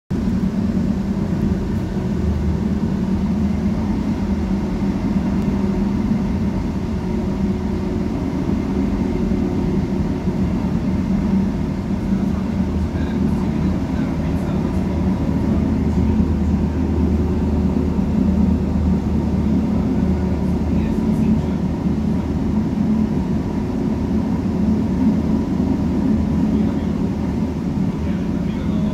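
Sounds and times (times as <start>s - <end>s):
train low rumble: 0.1s - 28.9s.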